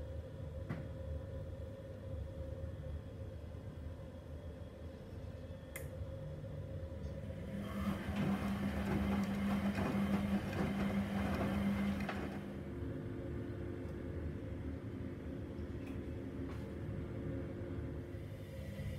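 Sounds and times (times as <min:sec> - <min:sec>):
washing machine drum churning: 0:07.3 - 0:12.7.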